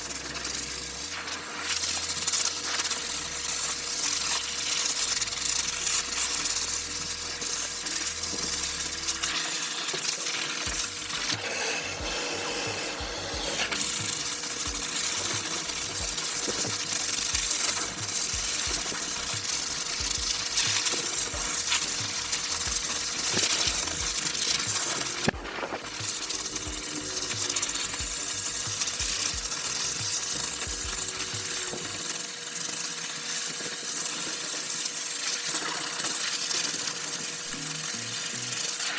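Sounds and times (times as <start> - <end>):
grooming dryer blowing: 9.0 - 30.1.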